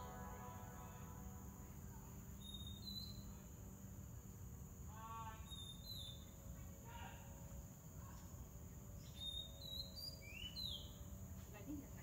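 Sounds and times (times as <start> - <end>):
high-pitched insect drone: 0.0 - 7.2
faint whistled birdsong: 2.3 - 3.7, 5.2 - 7.0, 8.0 - 11.3.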